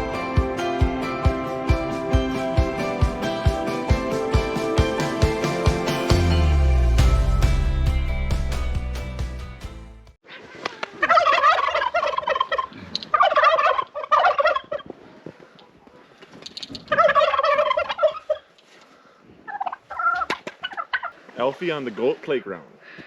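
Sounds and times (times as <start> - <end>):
turkeys gobbling: 10.4 - 16.0, 16.6 - 18.5, 19.5 - 21.2.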